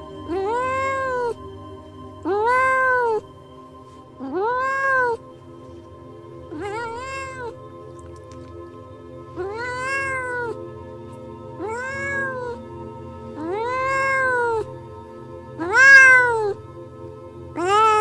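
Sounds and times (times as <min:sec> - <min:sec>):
background music: 0:00.0 - 0:18.0
cat meowing: 0:00.3 - 0:01.4, 0:02.2 - 0:03.2, 0:04.2 - 0:05.2, 0:06.5 - 0:07.6, 0:09.4 - 0:10.6, 0:11.6 - 0:12.6, 0:13.4 - 0:14.7, 0:15.6 - 0:16.6, 0:17.6 - 0:18.0.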